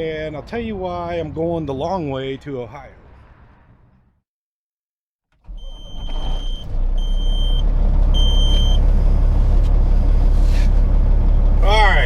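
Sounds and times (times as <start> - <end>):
diesel truck engine rumbling: 5.4 - 12.0
short electronic beeps: 5.6 - 8.8.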